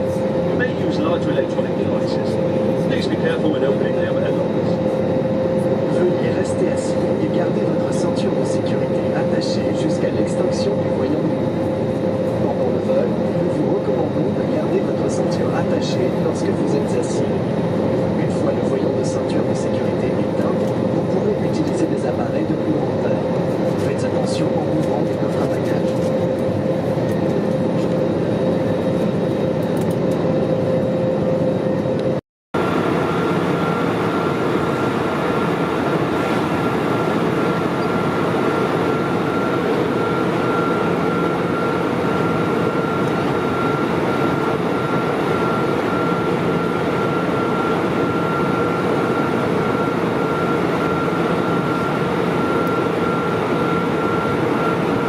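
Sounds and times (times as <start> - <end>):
constant cabin hum: 0.0 - 55.0
jet engine and airflow roar: 0.0 - 55.0.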